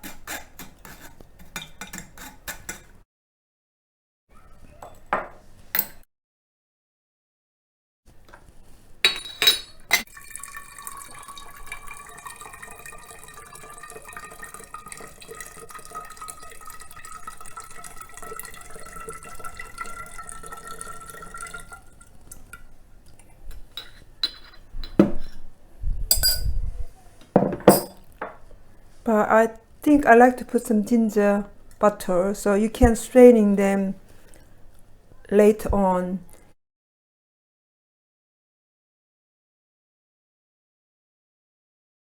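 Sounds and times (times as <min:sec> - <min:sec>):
glass clinks: 0:09.1 - 0:10.6, 0:23.8 - 0:25.4, 0:26.1 - 0:26.6, 0:27.4 - 0:28.0
liquid pouring into glass: 0:10.0 - 0:22.7
knocks: 0:27.4 - 0:28.0.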